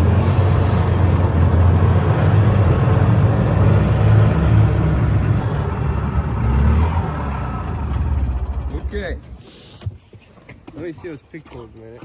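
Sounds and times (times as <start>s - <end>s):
motorcycle engine running: 7.0s - 9.4s.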